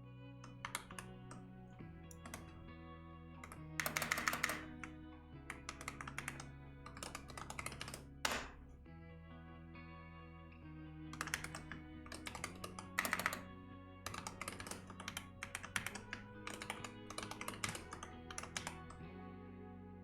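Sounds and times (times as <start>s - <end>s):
soft background music: 0.0s - 20.0s
fast typing on keyboard: 0.4s - 1.4s, 2.1s - 2.5s, 3.4s - 4.9s, 5.5s - 8.7s, 11.2s - 13.5s, 14.1s - 19.0s.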